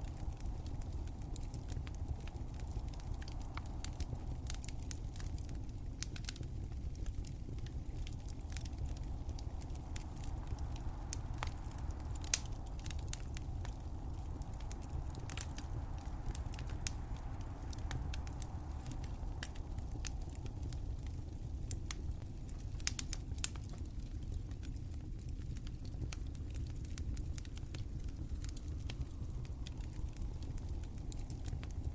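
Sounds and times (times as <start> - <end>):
fireplace fire crackling: 0.0 - 31.9.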